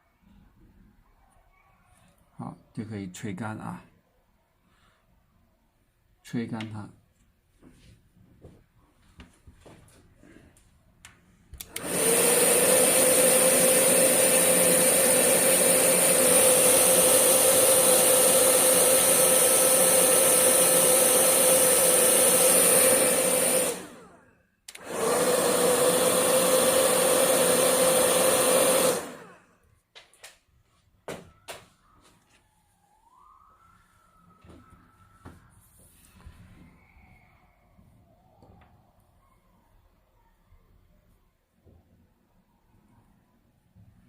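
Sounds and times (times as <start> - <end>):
hair dryer running: 11.6 - 29.6.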